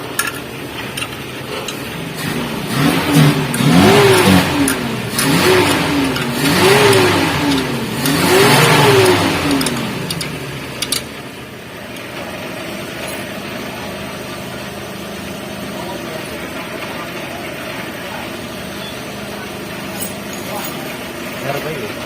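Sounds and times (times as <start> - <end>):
engine humming steadily: 0.0 - 22.0
engine revving: 1.5 - 11.2
sharp clicks: 3.5 - 11.1.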